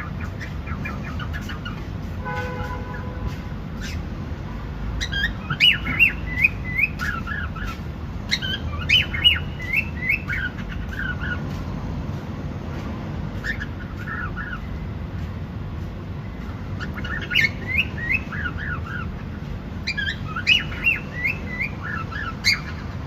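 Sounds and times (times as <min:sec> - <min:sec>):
cockatiel chirping and whistling: 0:05.0 - 0:11.4, 0:16.8 - 0:19.1, 0:19.8 - 0:22.9.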